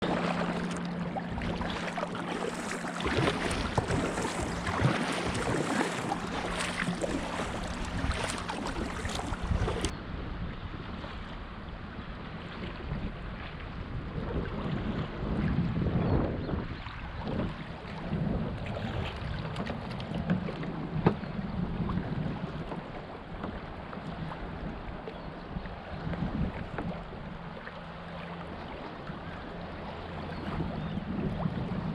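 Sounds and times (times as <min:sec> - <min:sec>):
wind on microphone: 0:00.0 - 0:27.6, 0:29.0 - 0:31.9
water splashing against kayak: 0:00.0 - 0:31.9.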